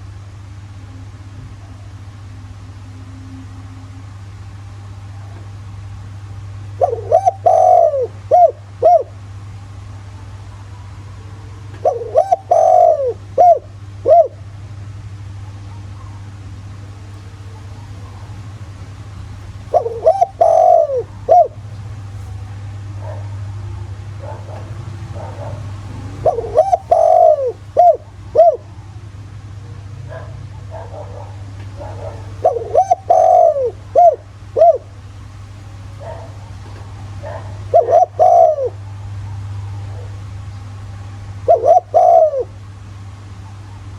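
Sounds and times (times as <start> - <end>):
steady low hum: 0.0 - 43.9
dove cooing: 6.2 - 9.4, 11.2 - 14.7, 15.6 - 29.0, 29.6 - 43.9
faint dove coos: 6.7 - 9.2, 11.2 - 14.5, 17.2 - 23.5, 24.3 - 28.9, 31.6 - 35.0, 36.0 - 38.9, 41.5 - 42.6.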